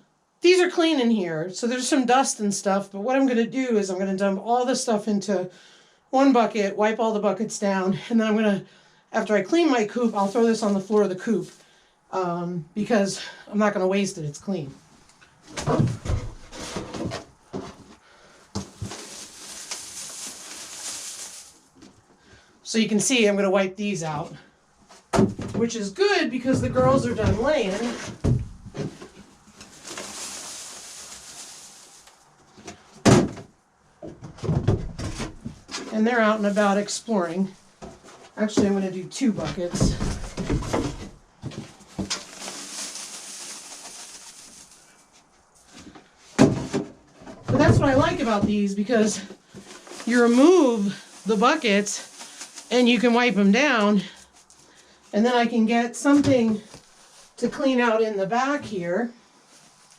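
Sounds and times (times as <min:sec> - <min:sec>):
bedding rustling as poured: 0:18.6 - 0:21.8, 0:27.1 - 0:28.2, 0:28.9 - 0:32.4, 0:41.8 - 0:45.8, 0:47.6 - 0:54.8
plastic buckets knocking: 0:26.4 - 0:29.2, 0:46.4 - 0:48.6.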